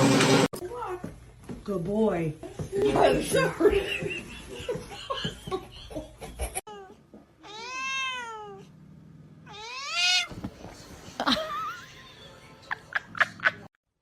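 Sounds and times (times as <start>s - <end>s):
cat meowing: 6.7s - 8.7s, 9.4s - 10.4s.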